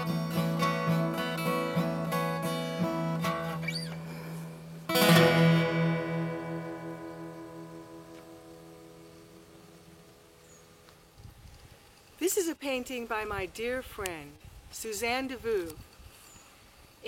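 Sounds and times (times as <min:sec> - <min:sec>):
acoustic guitar playing: 0:00.0 - 0:11.1.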